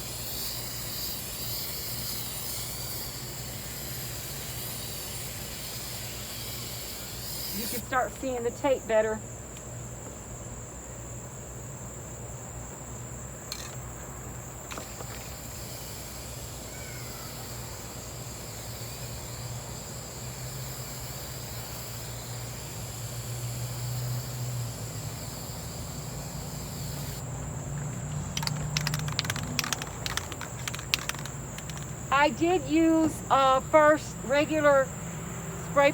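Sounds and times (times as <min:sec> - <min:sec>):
aerosol spray can hissing: 0:00.0 - 0:08.5, 0:14.8 - 0:27.2, 0:28.3 - 0:34.8
insect chirring: 0:00.0 - 0:09.9, 0:11.7 - 0:35.9
quick clicks: 0:28.2 - 0:32.2.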